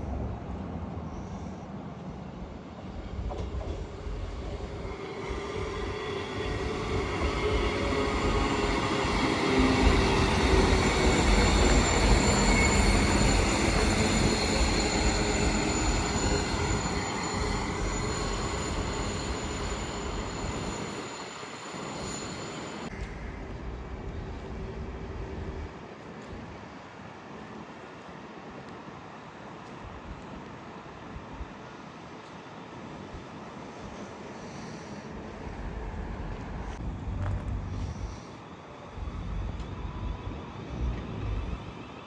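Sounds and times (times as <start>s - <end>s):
train passing: 0.0s - 42.0s
high-pitched whining tones: 3.6s - 23.8s.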